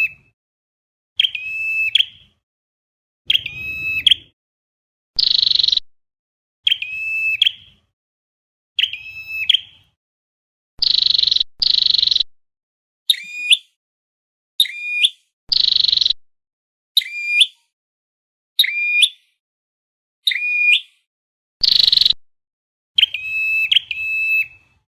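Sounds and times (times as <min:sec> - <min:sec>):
bird calls: 0:01.2 - 0:02.3, 0:03.3 - 0:04.4, 0:06.6 - 0:07.8, 0:08.8 - 0:09.9, 0:21.6 - 0:22.2, 0:23.0 - 0:24.7
harsh buzzy bird notes: 0:03.3 - 0:04.4.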